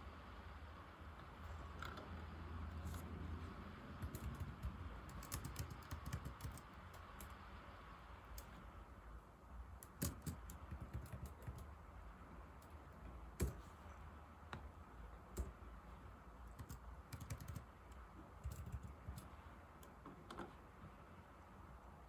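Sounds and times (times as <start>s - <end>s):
laptop keyboard typing: 1.6s - 7.4s, 9.8s - 11.8s, 12.6s - 14.7s, 15.3s - 15.7s, 16.4s - 20.5s.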